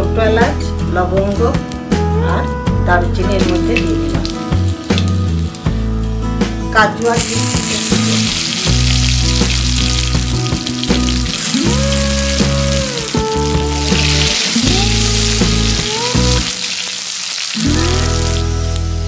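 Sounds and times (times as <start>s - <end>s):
background music: 0.0s - 19.0s
food sizzling in hot fat: 3.5s - 6.3s, 7.0s - 19.0s.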